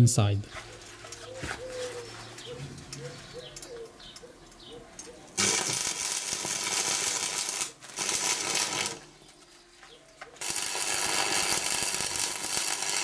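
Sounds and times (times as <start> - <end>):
welding arc crackling and hissing: 5.4 - 9.2, 10.4 - 13.0.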